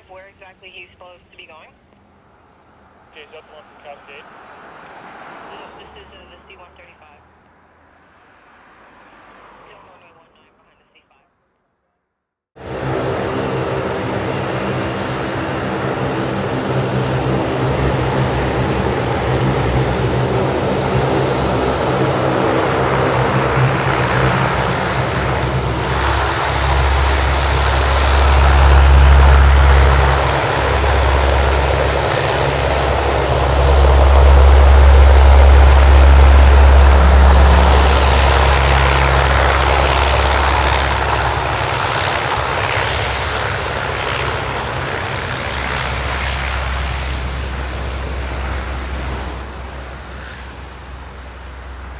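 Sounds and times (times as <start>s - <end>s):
turboprop propeller drone: 12.6s - 51.9s.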